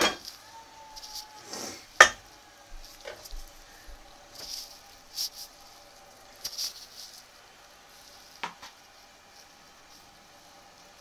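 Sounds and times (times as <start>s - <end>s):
food sizzling and spitting: 1.0s - 11.0s.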